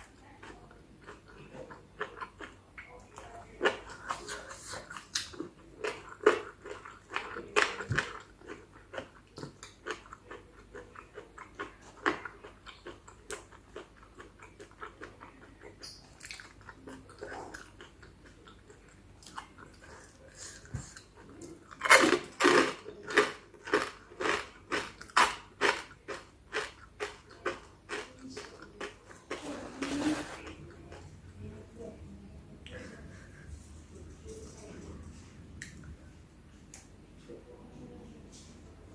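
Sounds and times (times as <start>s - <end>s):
chewing and crunching: 0.0s - 31.1s.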